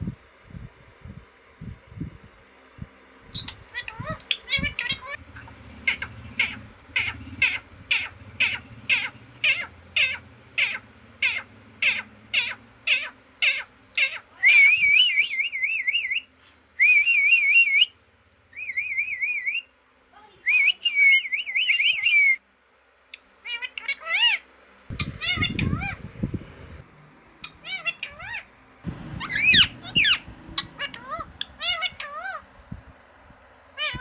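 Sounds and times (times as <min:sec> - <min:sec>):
parrot warbling whistles: 0:29.2 - 0:32.4.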